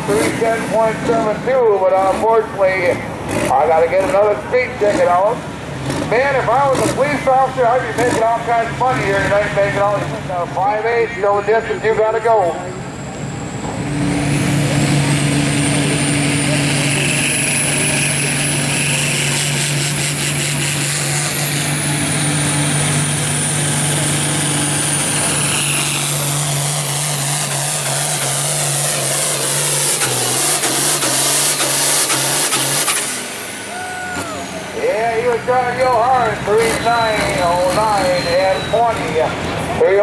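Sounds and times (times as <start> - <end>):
diesel tractor engine under load: 0.0 - 40.0
high turbo whistle: 15.6 - 20.7.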